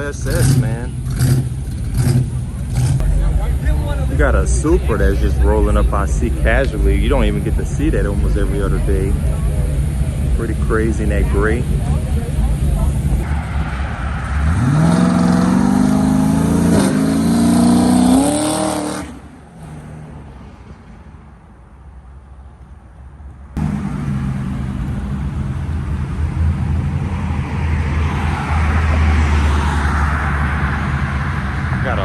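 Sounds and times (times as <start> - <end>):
car engine revving: 0.0 - 20.3, 23.6 - 32.0
car engine low rumble: 0.0 - 32.0
car passing by: 12.7 - 21.2, 23.6 - 32.0.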